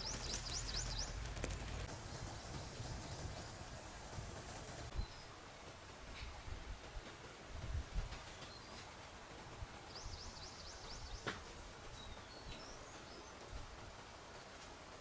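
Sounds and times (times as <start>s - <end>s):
bird trill: 0.0s - 1.2s
birds chirping: 0.0s - 5.3s
faint background hiss: 0.0s - 15.0s.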